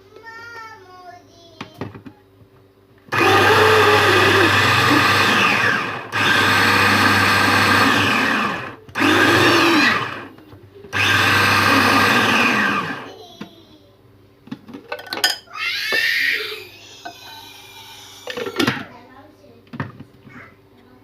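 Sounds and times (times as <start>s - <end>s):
electric food chopper motor whining: 3.1s - 13.1s.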